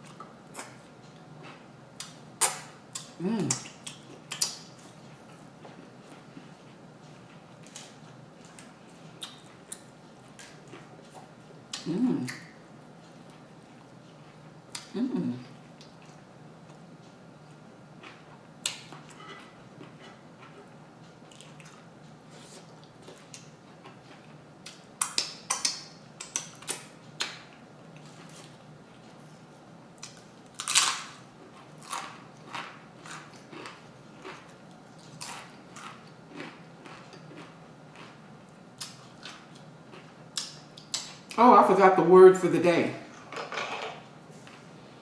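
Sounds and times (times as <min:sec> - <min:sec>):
biting and chewing sandwich: 0:30.0 - 0:38.2.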